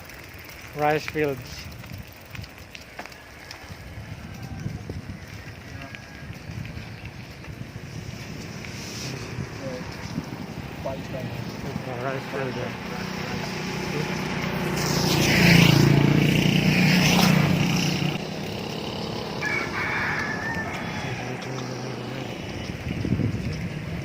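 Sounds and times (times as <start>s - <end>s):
rooster crowing: 3.4s - 6.5s, 19.4s - 21.7s
vehicle engine passing: 7.6s - 24.0s.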